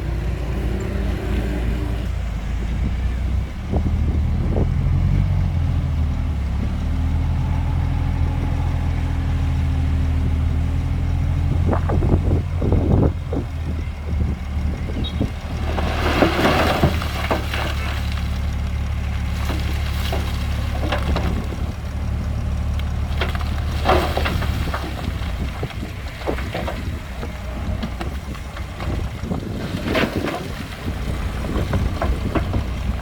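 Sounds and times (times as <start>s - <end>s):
heavy diesel engine running: 0.0s - 33.0s
loud clattering and rattling: 14.8s - 33.0s.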